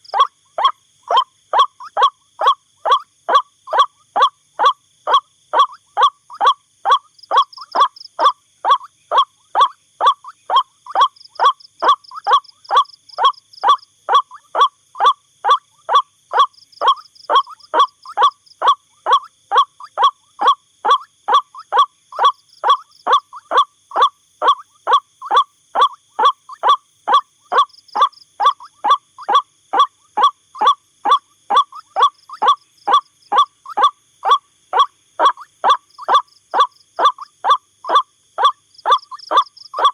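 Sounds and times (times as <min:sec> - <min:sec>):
waterhen calling: 0:16.3 - 0:39.9.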